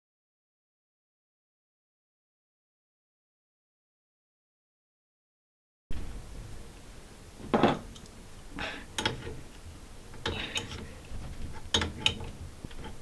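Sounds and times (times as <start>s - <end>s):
wrench clicking and scraping on nut: 9.0s - 13.0s.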